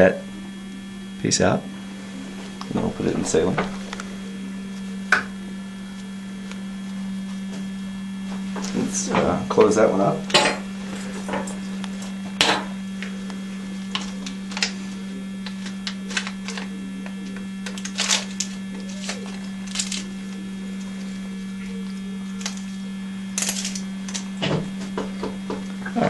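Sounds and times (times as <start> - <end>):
electrical hum: 0.0 - 26.0
metal instruments clicking: 23.4 - 24.3.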